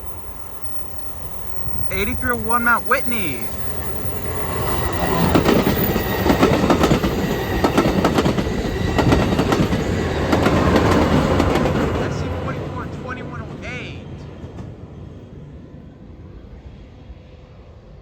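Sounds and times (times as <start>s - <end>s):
train rumble: 0.0s - 18.0s
train wheels clacking on rails: 4.4s - 13.6s.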